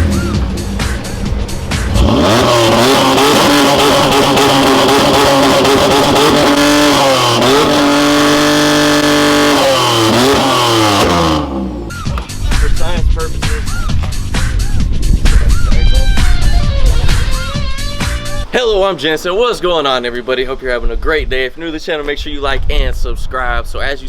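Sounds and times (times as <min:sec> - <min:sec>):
background music: 0:00.0 - 0:03.4, 0:11.2 - 0:19.1
car engine revving: 0:00.0 - 0:12.8.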